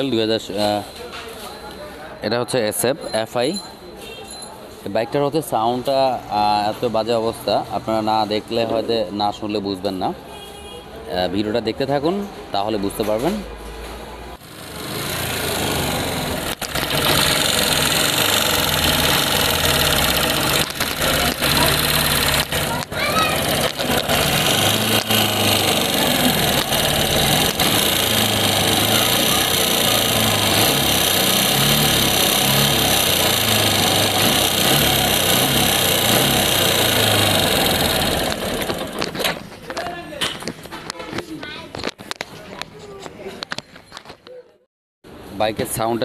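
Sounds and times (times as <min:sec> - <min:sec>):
motorcycle engine running: 0:14.4 - 0:39.2.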